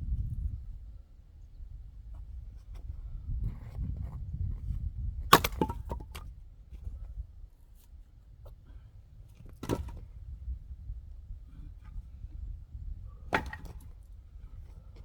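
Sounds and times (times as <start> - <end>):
axe striking wood: 5.3 - 6.2, 13.3 - 13.8.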